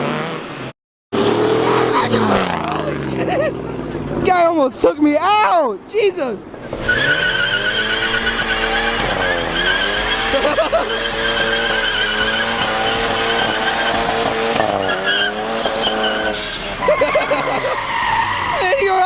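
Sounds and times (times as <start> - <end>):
car engine revving high: 0.0 - 4.2, 6.6 - 17.8
tyres squealing: 6.6 - 19.0.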